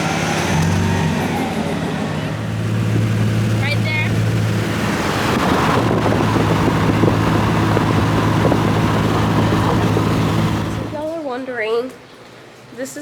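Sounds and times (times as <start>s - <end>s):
road noise: 0.0s - 11.2s
vehicle engine hum: 0.0s - 11.2s
wind on microphone: 2.4s - 11.0s.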